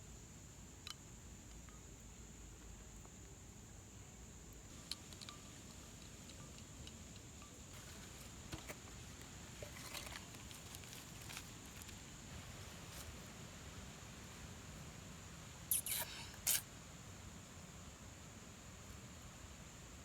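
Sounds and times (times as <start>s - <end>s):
high-pitched hiss: 0.0s - 20.0s.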